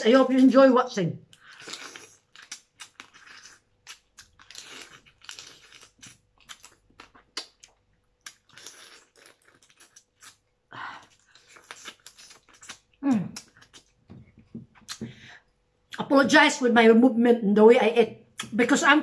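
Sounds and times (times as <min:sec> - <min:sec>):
wet chewing: 0:01.3 - 0:15.2
crab shell crunching: 0:01.4 - 0:10.4, 0:11.2 - 0:14.1.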